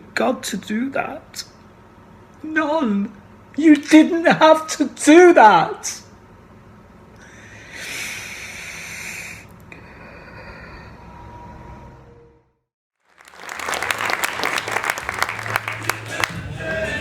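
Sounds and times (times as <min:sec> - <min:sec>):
audience applauding: 0:13.0 - 0:17.0.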